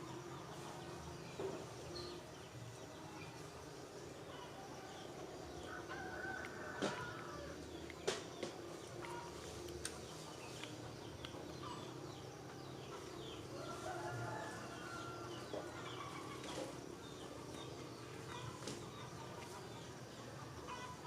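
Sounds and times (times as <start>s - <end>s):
small birds chirping: 0.0s - 21.0s
rooster crowing: 5.6s - 7.6s, 13.6s - 15.5s.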